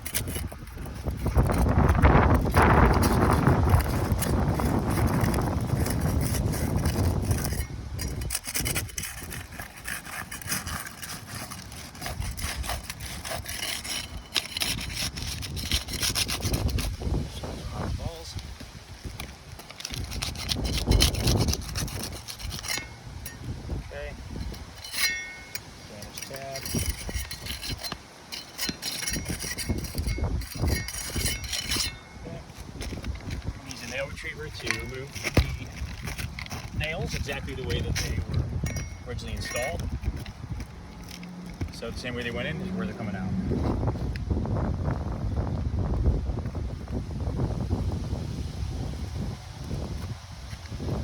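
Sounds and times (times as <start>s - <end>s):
tool scraping roof shingles: 0.0s - 23.5s, 24.2s - 44.1s
wind rumble on microphone: 0.0s - 51.0s
metal tool clinking on nails: 24.4s - 32.2s, 34.5s - 40.4s.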